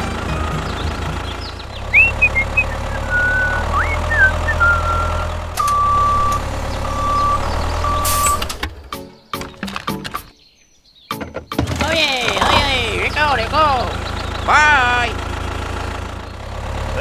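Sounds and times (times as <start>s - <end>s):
vehicle engine running: 0.0s - 8.9s, 12.4s - 17.0s
reversing alarm beeping: 1.9s - 8.5s
short squeaky glides: 1.9s - 8.6s.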